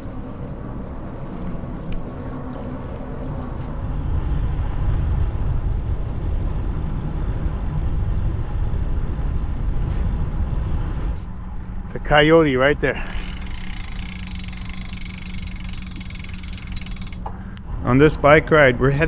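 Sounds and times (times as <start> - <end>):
wind buffeting microphone: 0.0 - 18.8
road noise: 11.2 - 19.0.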